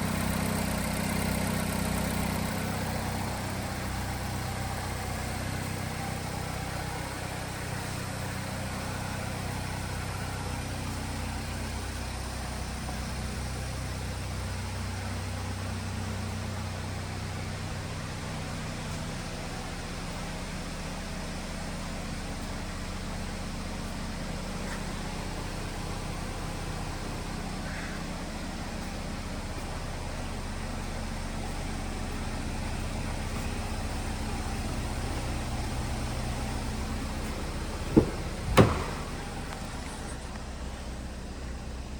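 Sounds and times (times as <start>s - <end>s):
car engine idling: 0.0s - 41.9s
sharp knocks: 37.9s - 39.4s.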